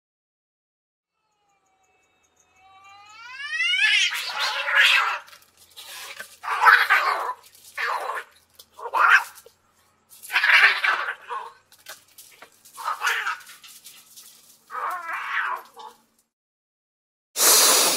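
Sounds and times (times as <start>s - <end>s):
animal rising cry: 1.2s - 5.3s
animal hissing snarls: 17.4s - 17.9s.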